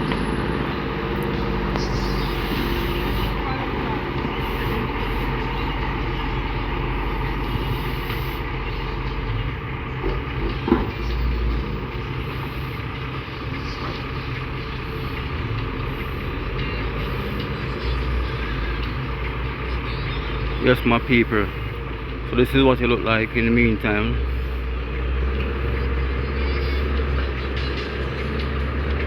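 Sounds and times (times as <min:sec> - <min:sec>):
heavy vehicle engine rumble: 0:00.0 - 0:29.0.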